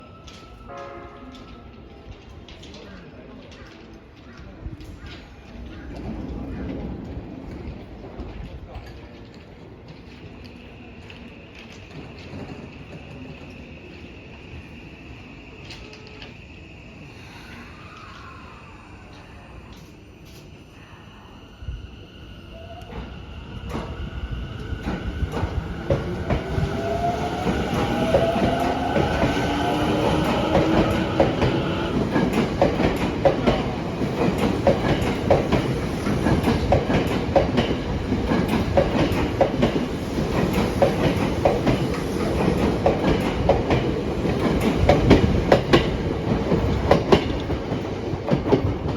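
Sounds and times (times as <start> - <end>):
train wheels clattering over rail joints: 24.8 - 48.9.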